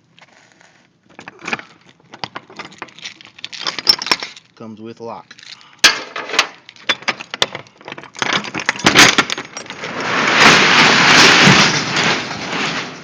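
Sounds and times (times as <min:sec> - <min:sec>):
roll-up door rattling open: 0:06.1 - 0:13.0.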